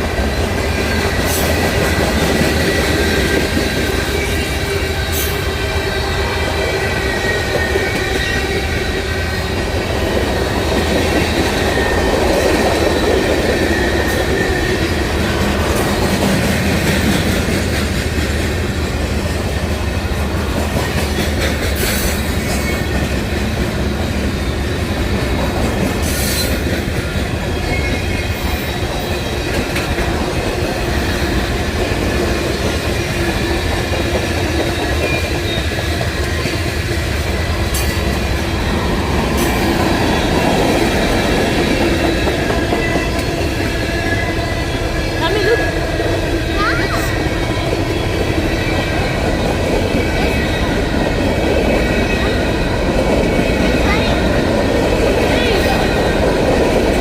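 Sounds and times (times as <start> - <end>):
train wheels clacking on rails: 0.0 - 57.0
high wheel squeal: 34.5 - 45.8.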